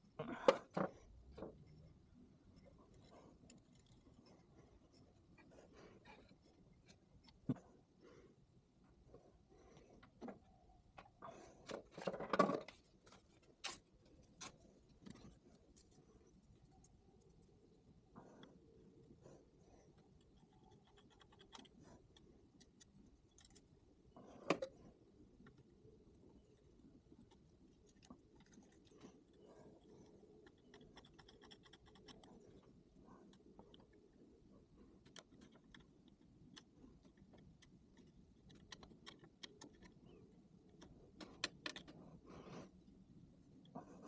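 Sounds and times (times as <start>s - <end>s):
small clicks of metal parts: 35.0s - 40.0s.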